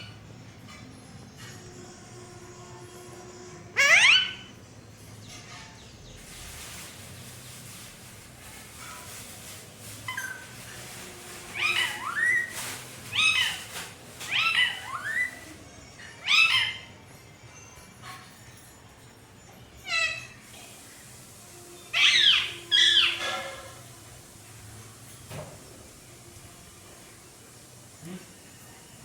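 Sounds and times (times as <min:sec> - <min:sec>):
parrot mimicking words: 0:03.8 - 0:04.4
parrot squawking: 0:03.8 - 0:04.5, 0:11.5 - 0:15.5, 0:16.2 - 0:17.0, 0:19.8 - 0:20.4, 0:21.9 - 0:23.8.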